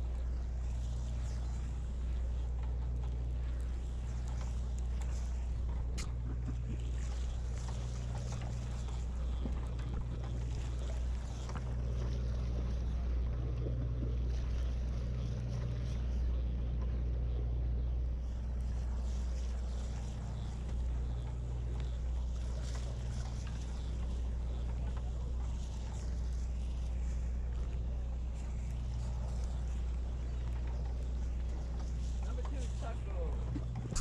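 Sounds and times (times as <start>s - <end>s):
boat engine droning: 0.0s - 34.0s
wind and water hiss: 0.0s - 34.0s.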